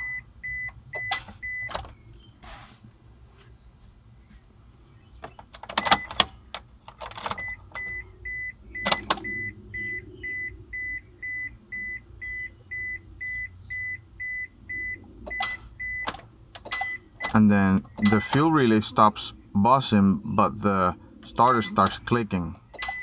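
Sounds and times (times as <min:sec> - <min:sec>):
high electronic beep: 0:07.4 - 0:16.1, 0:16.7 - 0:18.5
car starter clicking: 0:08.8 - 0:09.4, 0:22.7 - 0:23.0.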